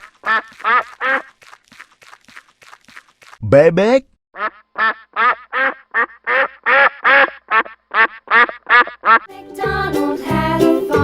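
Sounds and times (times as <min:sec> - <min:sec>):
duck quacking: 0:00.2 - 0:01.3, 0:04.4 - 0:09.3.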